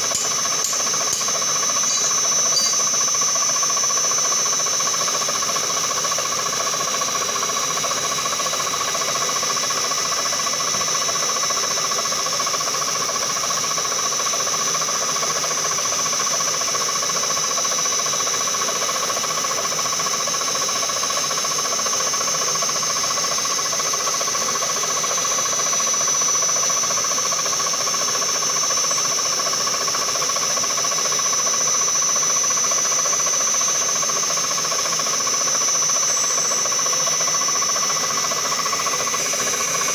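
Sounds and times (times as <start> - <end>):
milling machine whining: 0.0 - 4.4.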